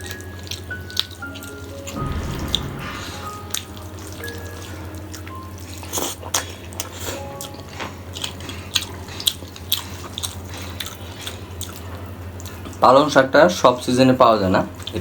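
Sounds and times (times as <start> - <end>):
chewing with mouth clicks: 6.0 - 12.8.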